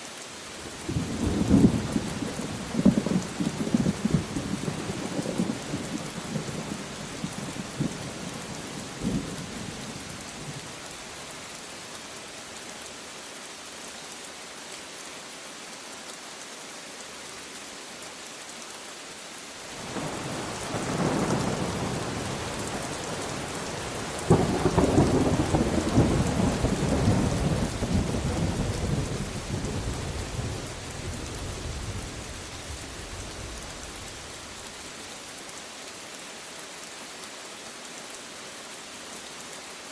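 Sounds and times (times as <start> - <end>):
steady rain: 0.0 - 39.9
thunder rumbling: 19.8 - 34.3.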